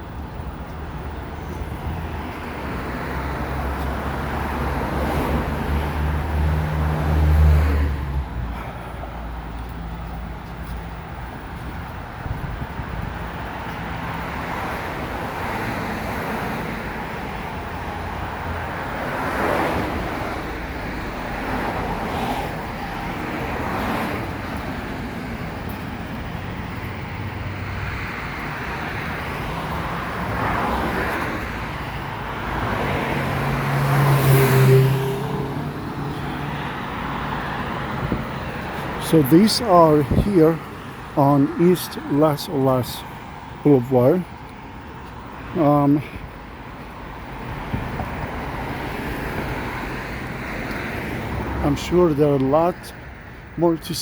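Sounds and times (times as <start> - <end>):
cars passing: 0.0 - 54.0
road traffic noise: 0.0 - 54.0.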